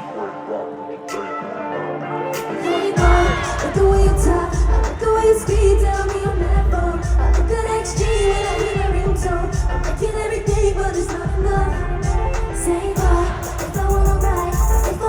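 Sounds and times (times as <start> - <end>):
woman singing pop song: 0.0 - 15.0
heavy bass beat: 3.0 - 15.0.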